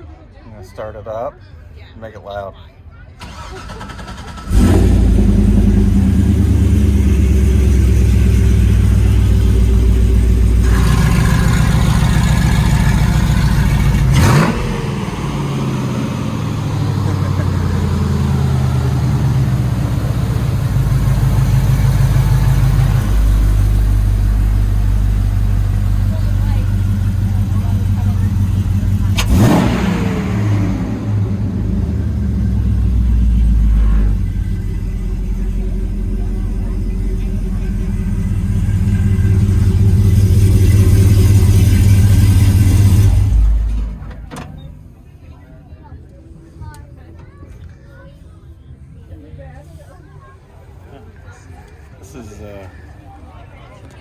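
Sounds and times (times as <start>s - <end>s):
pickup engine idling: 3.2s - 45.4s.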